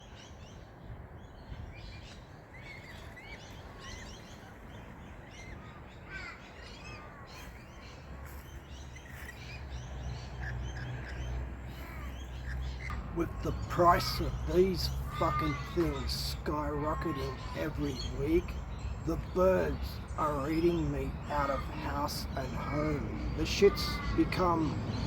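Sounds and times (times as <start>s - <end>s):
wild birds chirping: 0.0s - 25.0s
crow cawing: 5.6s - 7.6s, 10.7s - 18.2s, 20.2s - 25.0s.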